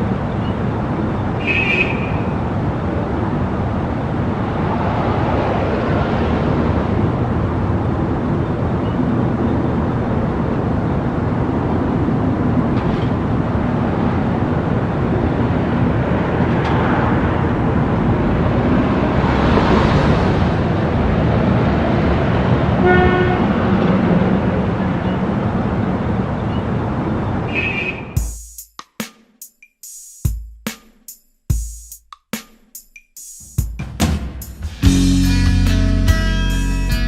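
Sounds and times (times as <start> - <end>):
loud rumbling noise: 2.4 - 28.2
horn-like tone: 22.8 - 23.5.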